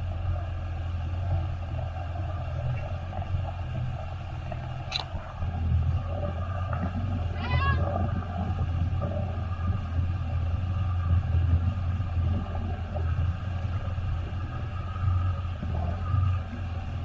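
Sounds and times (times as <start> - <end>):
jet ski engine rumble: 0.0 - 17.0.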